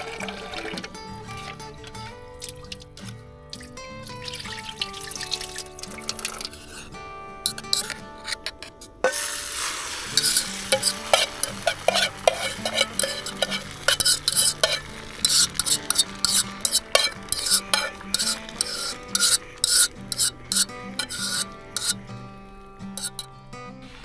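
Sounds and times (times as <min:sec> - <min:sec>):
food sizzling in a pan: 0:04.4 - 0:22.2, 0:23.0 - 0:23.3
utensil scraping pan: 0:06.3 - 0:22.1, 0:23.0 - 0:23.3
utensil clicking against pan: 0:07.5 - 0:22.0, 0:23.0 - 0:23.3.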